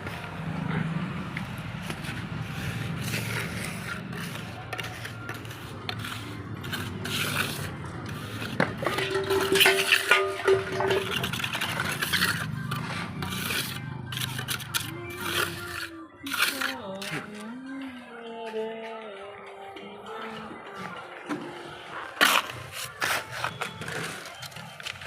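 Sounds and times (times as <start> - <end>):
scraping and rubbing: 1.8 - 17.4, 22.1 - 25.0.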